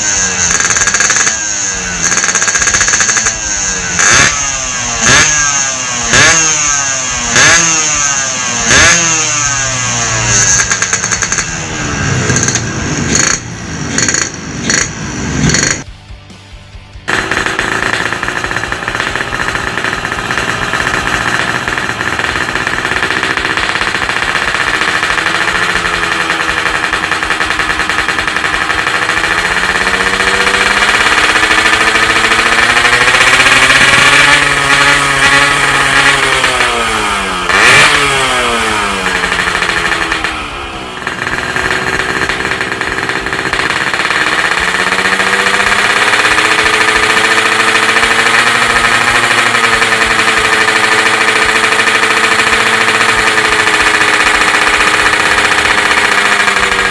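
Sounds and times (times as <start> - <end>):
two-stroke engine revving: 0.0 - 16.4, 17.0 - 56.9.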